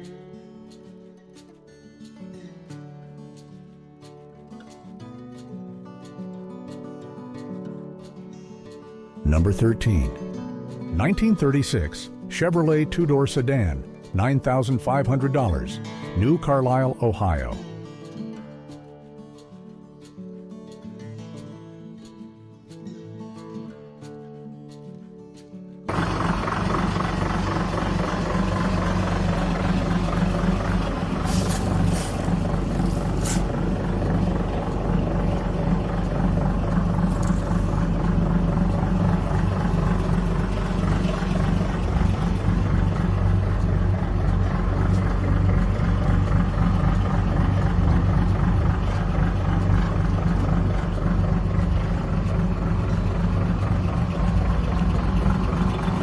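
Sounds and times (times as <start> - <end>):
car engine idling: 25.9 - 56.0.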